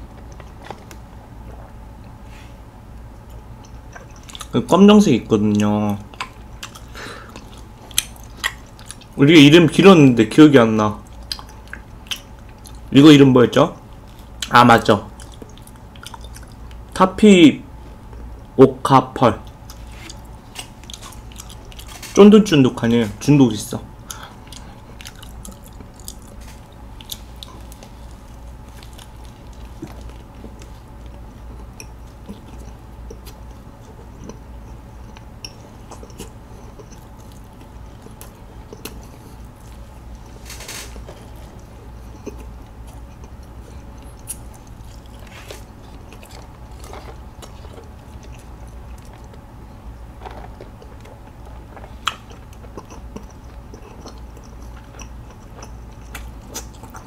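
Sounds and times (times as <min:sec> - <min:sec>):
steady low hum: 0:00.0 - 0:57.0
wet chewing mouth sounds: 0:03.2 - 0:04.6, 0:05.5 - 0:09.2, 0:11.0 - 0:12.9, 0:13.7 - 0:17.0, 0:19.4 - 0:22.1, 0:24.0 - 0:40.4, 0:41.0 - 0:57.0.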